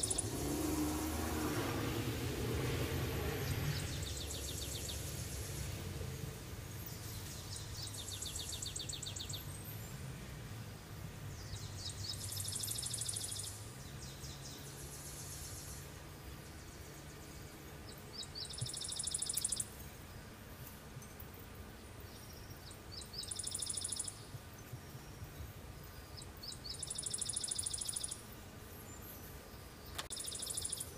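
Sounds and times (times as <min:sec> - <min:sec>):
songbird trilling: 0:00.0 - 0:00.4, 0:07.2 - 0:09.6, 0:11.4 - 0:15.8, 0:17.9 - 0:19.7, 0:22.2 - 0:24.3, 0:26.1 - 0:28.3, 0:29.9 - 0:30.9
low background hum: 0:00.0 - 0:30.9.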